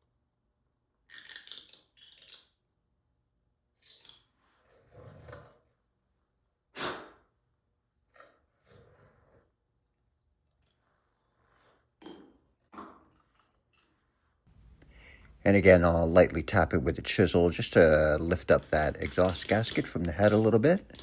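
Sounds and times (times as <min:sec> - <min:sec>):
metal tool scraping and clinking: 0:17.6 - 0:21.0.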